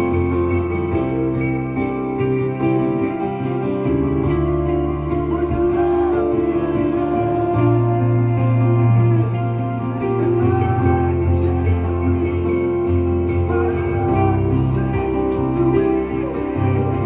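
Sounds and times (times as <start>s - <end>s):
held low notes: 0.0s - 17.0s
strummed acoustic guitar: 0.0s - 17.0s.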